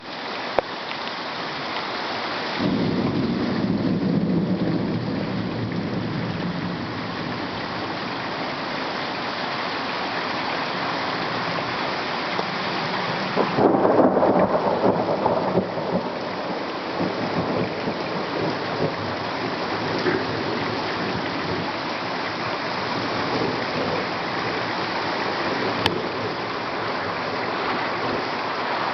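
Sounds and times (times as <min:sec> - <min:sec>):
heavy rain falling: 0:00.0 - 0:28.9
thunder rumbling: 0:02.6 - 0:08.5, 0:13.1 - 0:28.4.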